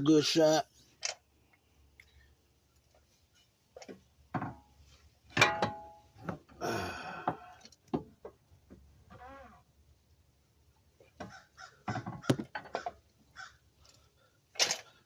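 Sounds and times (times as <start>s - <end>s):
metal clanks and knocks: 5.3s - 6.5s, 11.2s - 13.0s.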